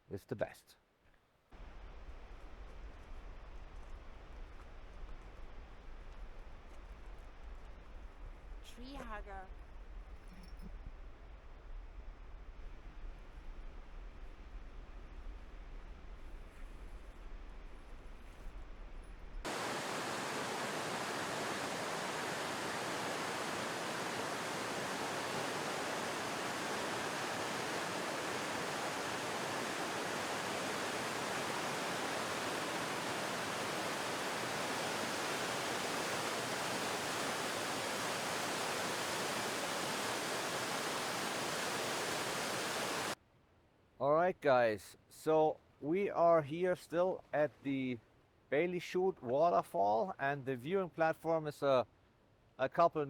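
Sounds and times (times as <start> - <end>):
waterfall rushing: 19.5 - 43.2.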